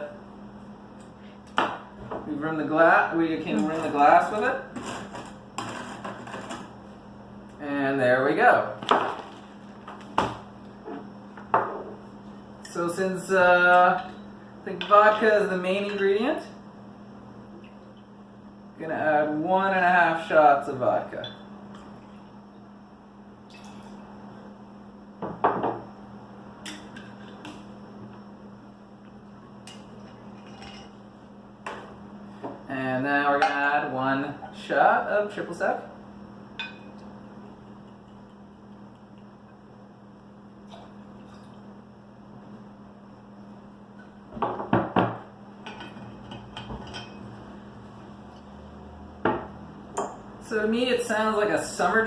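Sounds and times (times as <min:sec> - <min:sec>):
low steady hum: 0:00.0 - 0:52.0
glassware knocking on a counter: 0:25.2 - 0:25.8.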